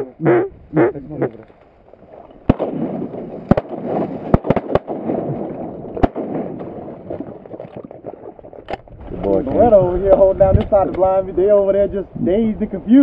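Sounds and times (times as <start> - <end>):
shotgun shots: 2.4 - 8.2.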